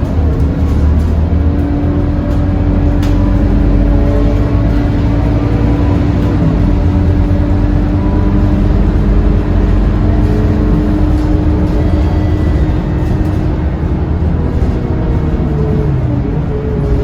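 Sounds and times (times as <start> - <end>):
bus diesel engine rumbling: 0.0 - 17.0.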